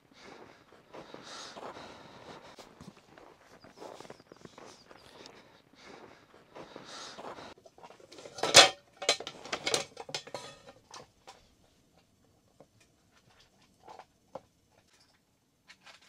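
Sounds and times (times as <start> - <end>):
cookware rustling: 7.7 - 11.2
metal cookware clattering: 8.0 - 11.0
metal utensils knocking and clinking: 8.1 - 11.0.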